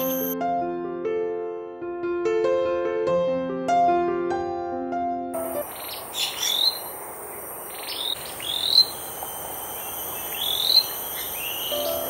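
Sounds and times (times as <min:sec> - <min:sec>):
bird calling: 0:00.0 - 0:00.4, 0:05.4 - 0:12.0
high insect drone: 0:00.0 - 0:00.4, 0:05.4 - 0:12.0
piano music: 0:00.0 - 0:05.9, 0:11.3 - 0:12.0.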